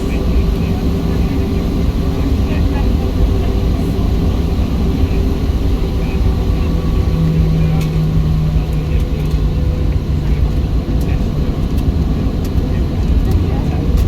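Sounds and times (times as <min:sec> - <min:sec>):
jet engines rumbling in cabin: 0:00.0 - 0:14.0
low hum: 0:00.0 - 0:14.0.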